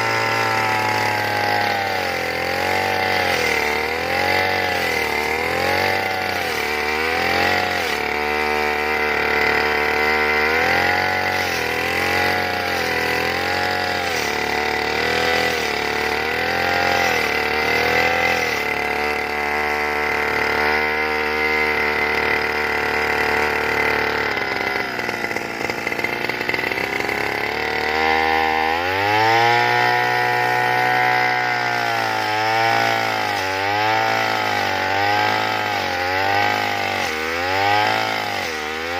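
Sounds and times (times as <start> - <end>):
brush cutter engine running: 0.0 - 38.9.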